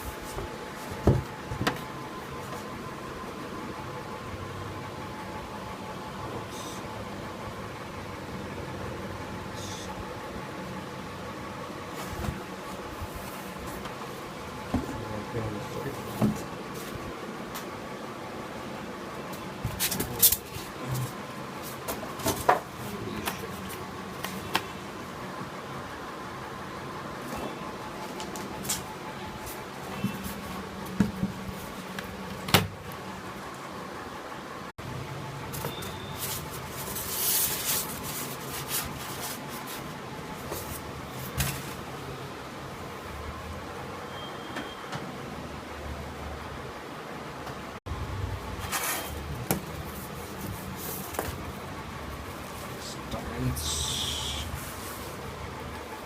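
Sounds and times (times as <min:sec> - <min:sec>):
steady background hum: 0:00.0 - 0:56.0
packaging rustling and scraping: 0:35.5 - 0:41.8, 0:48.6 - 0:51.4.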